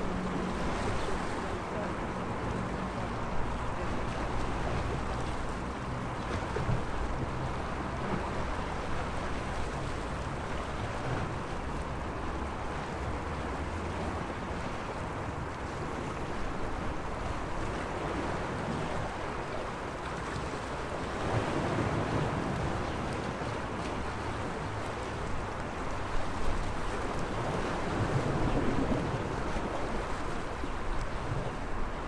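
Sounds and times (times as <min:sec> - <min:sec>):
sea waves washing: 0:00.0 - 0:32.0.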